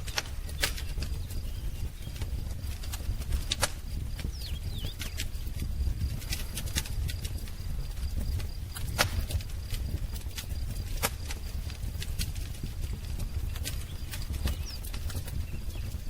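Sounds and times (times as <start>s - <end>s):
low rumble of flames: 0.0s - 16.0s
wood fire crackling and popping: 0.0s - 16.0s
faint bird chirps: 0.4s - 2.3s, 4.2s - 5.4s, 13.6s - 16.0s.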